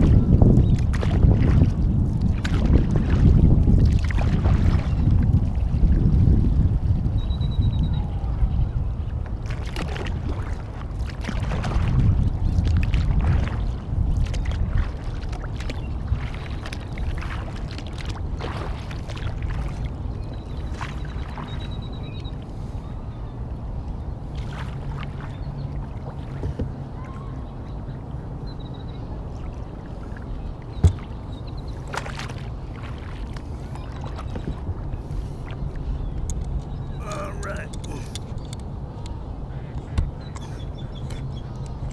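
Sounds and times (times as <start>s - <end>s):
paddle splashing in water: 0.0s - 6.1s, 9.4s - 21.8s, 24.3s - 27.4s, 29.3s - 36.0s
wind buffeting microphone: 0.0s - 41.9s.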